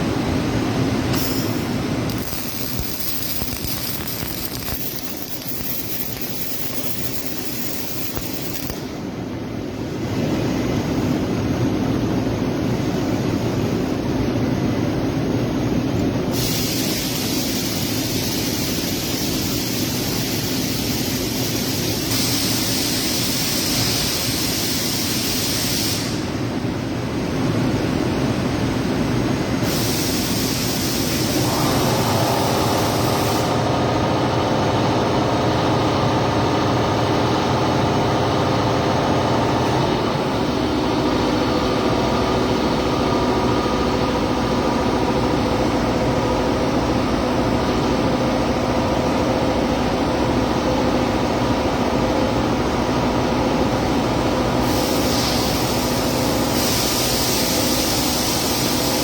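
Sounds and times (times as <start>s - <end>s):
machine hum with held tones: 0.1s - 9.7s, 30.7s - 54.6s
high hiss: 1.1s - 8.9s, 16.4s - 26.3s, 29.6s - 34.1s, 54.6s - 59.0s.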